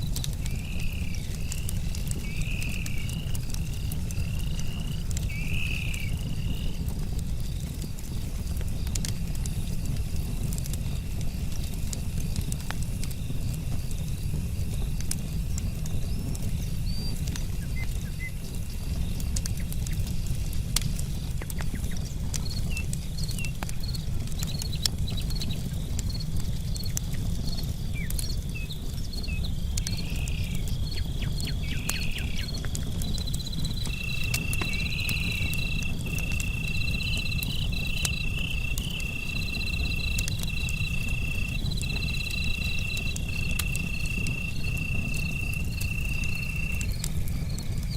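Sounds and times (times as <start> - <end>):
burning wood popping: 0.0 - 47.9
campfire crackling: 0.0 - 47.9
crickets trilling: 0.0 - 47.9
short chirping calls: 33.7 - 46.8.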